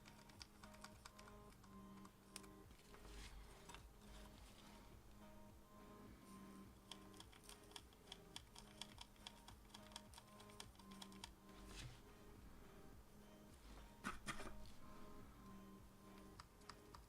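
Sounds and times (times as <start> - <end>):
keyboard typing: 0.0 - 3.0, 6.8 - 11.5, 16.1 - 17.0
quiet background music: 0.0 - 17.0.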